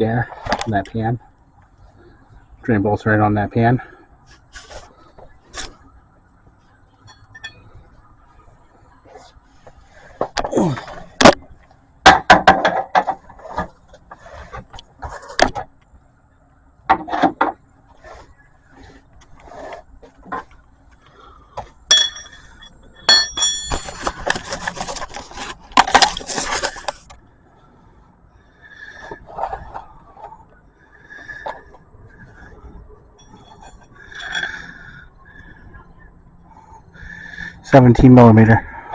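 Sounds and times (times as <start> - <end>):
metal tools clanking: 7.0 - 7.7, 21.9 - 25.2, 33.2 - 34.9.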